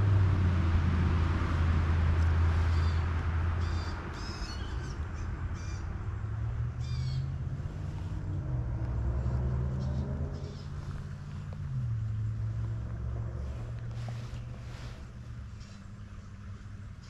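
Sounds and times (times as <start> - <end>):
steady low rumble: 0.0 - 17.0
harsh crow-like bird calls: 2.6 - 6.0, 6.8 - 7.4.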